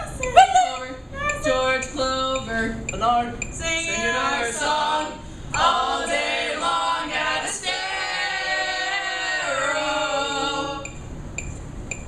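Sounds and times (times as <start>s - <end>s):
group singing a cappella: 3.6s - 11.1s.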